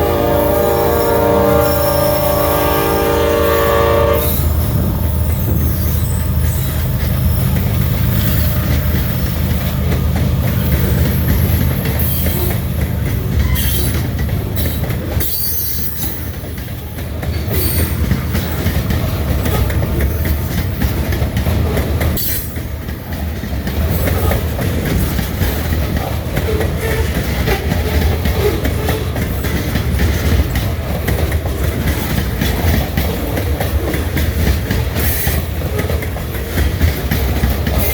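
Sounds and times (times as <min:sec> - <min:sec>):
freight train rumbling past: 0:00.0 - 0:37.9
wheels clacking on rail joints: 0:00.0 - 0:37.9
wheel squeals: 0:04.2 - 0:09.4.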